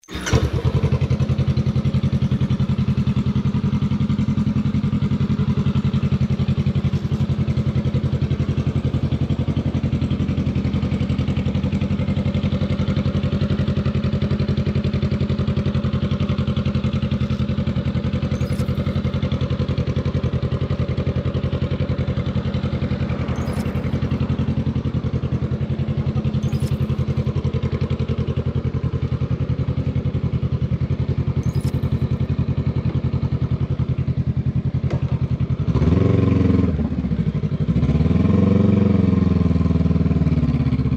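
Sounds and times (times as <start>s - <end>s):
motorcycle engine running steadily: 0.1s - 40.9s.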